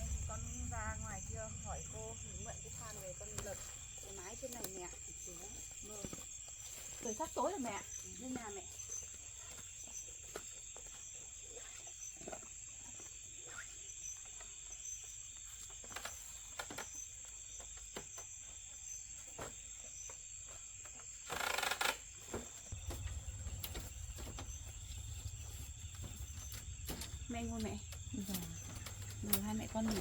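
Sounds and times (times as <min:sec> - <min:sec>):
low rumble: 0:00.0 - 0:04.5, 0:22.7 - 0:30.0
insects chirring: 0:00.0 - 0:30.0.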